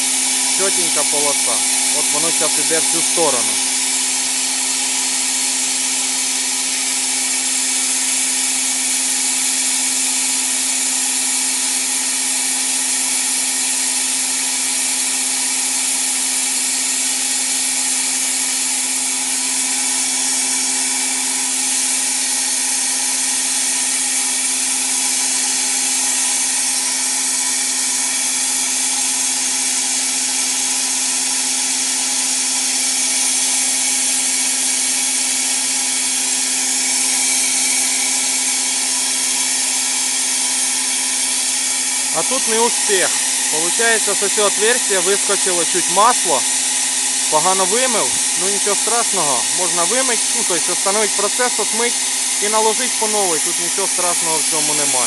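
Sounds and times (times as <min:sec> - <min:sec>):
spray gun blasting air: 0:00.0 - 0:17.7, 0:34.0 - 0:55.0
constant machine hum: 0:00.0 - 0:55.0.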